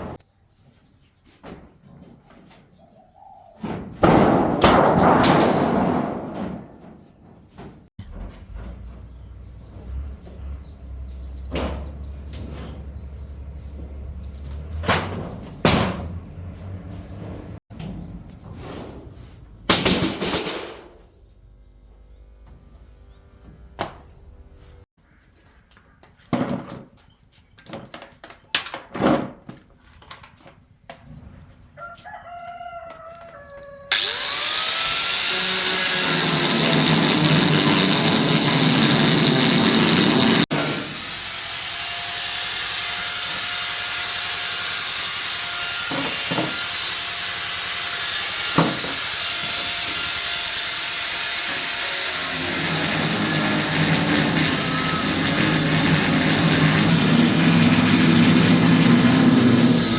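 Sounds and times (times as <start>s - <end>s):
power tool running: 33.9s - 59.9s.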